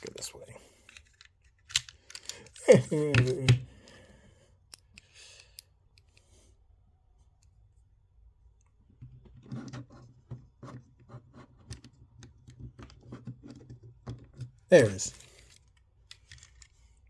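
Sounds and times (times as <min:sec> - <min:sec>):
plastic parts clicking and snapping: 0:00.8 - 0:04.0, 0:15.1 - 0:16.9.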